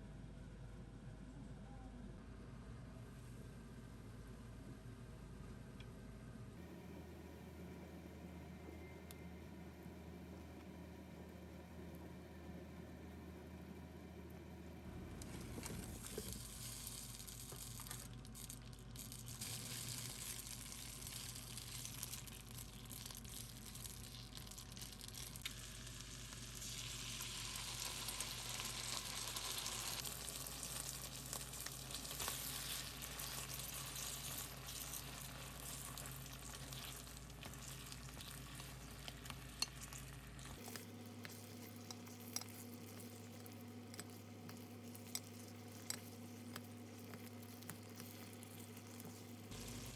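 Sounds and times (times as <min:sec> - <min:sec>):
food sizzling in a frying pan: 0:15.3 - 0:49.9.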